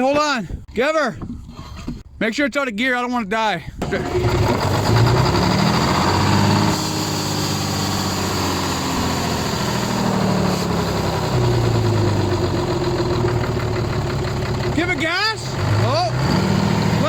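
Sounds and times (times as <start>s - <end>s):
diesel truck engine revving: 3.8s - 17.0s.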